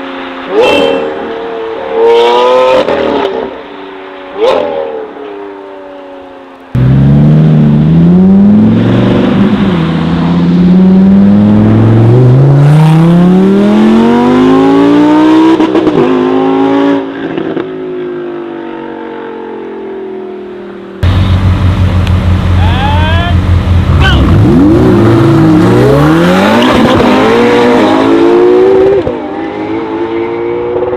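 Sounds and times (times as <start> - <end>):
car engine pulsing loudly: 6.8 - 15.5, 21.0 - 29.0
car engine accelerating hard: 6.8 - 17.6, 21.0 - 30.9.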